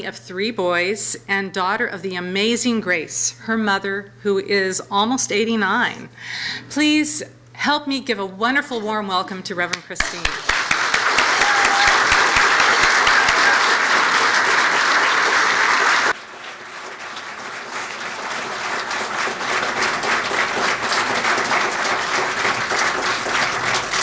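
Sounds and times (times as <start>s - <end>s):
congregation applauding: 10.0s - 24.0s.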